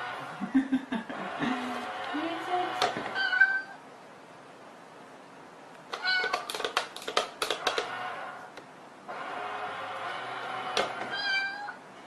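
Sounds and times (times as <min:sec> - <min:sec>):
cat meowing: 0:03.1 - 0:03.8, 0:05.9 - 0:06.5, 0:11.1 - 0:11.8
sharp clicks and knocks: 0:05.8 - 0:08.7.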